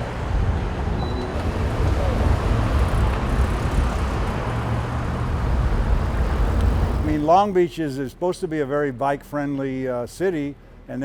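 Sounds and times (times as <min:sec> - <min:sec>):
road traffic rumble: 0:00.0 - 0:08.5.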